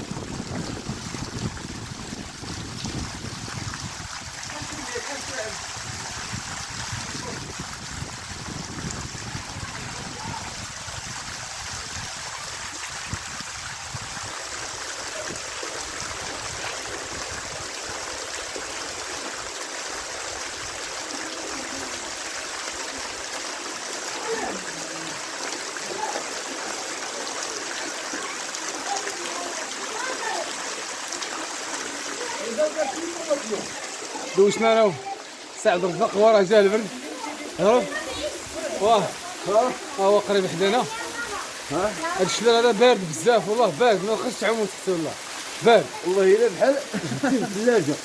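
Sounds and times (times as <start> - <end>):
waterfall rushing: 0.0 - 48.0
faint voices: 23.9 - 48.0.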